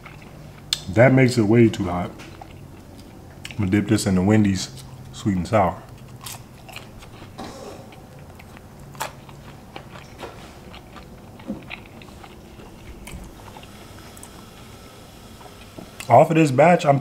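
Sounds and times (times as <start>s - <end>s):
person chewing crunchy food: 0.0s - 0.8s, 2.2s - 3.6s, 5.8s - 16.1s.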